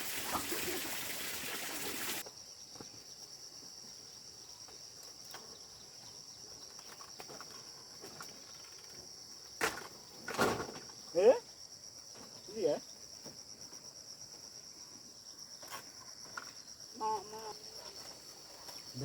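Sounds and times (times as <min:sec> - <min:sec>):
insect chirring: 0:01.7 - 0:19.0.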